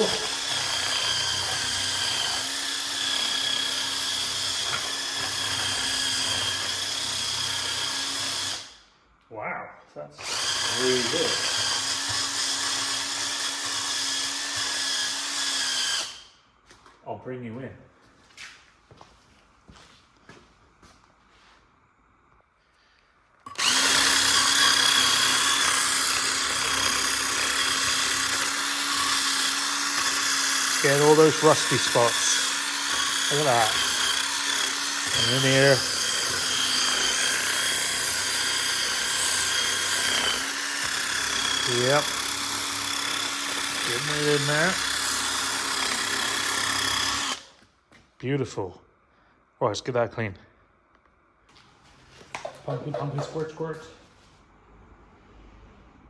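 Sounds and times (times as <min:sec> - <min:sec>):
electric drill motor whine: 0:00.0 - 0:08.8, 0:10.2 - 0:16.3, 0:23.4 - 0:47.6.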